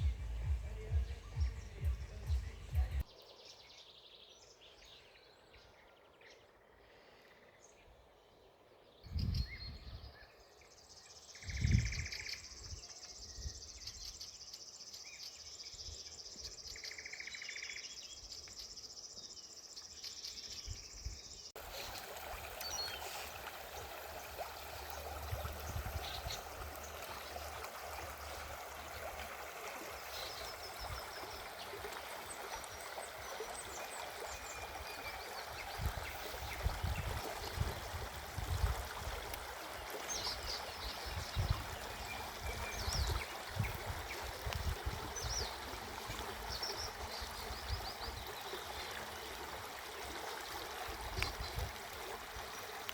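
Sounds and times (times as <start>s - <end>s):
low thumps: 0.0s - 3.0s.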